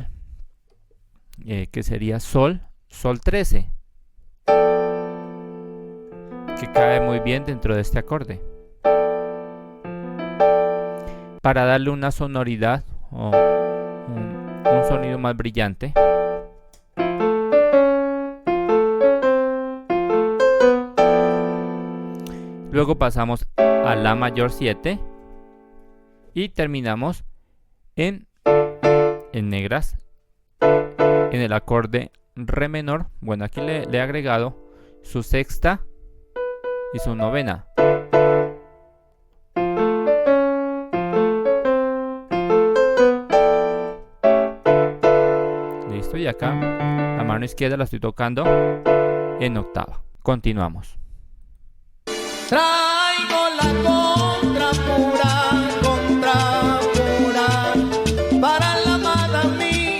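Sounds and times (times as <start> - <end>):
piano arpeggiated chords: 4.5 - 11.4, 13.3 - 15.2, 16.0 - 23.0, 23.6 - 26.1, 28.5 - 29.3, 30.6 - 31.4, 33.6 - 35.0, 36.4 - 39.0, 39.6 - 47.6, 48.5 - 49.8, 53.7 - 59.9.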